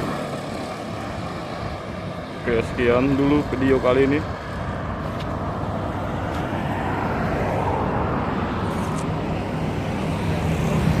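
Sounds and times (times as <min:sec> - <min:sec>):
continuous rushing noise: 0:00.0 - 0:11.0.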